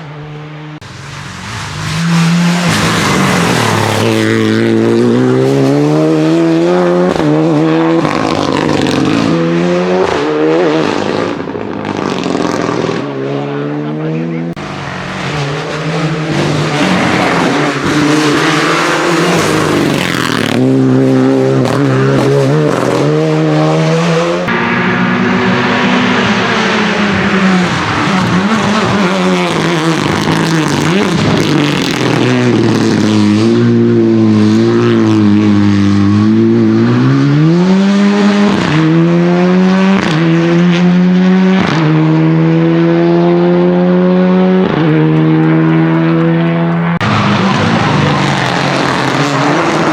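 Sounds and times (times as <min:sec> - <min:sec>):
rally car engine at full throttle: 0:00.0 - 0:49.9.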